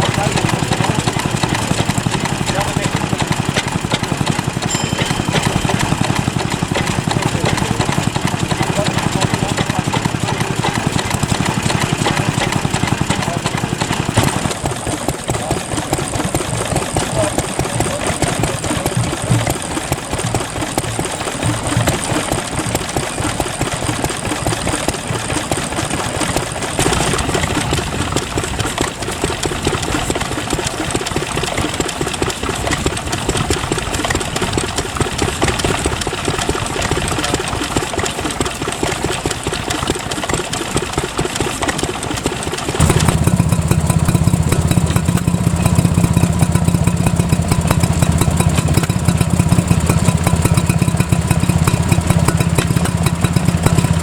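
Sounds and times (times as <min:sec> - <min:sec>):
stationary engines firing: 0:42.8 - 0:54.0.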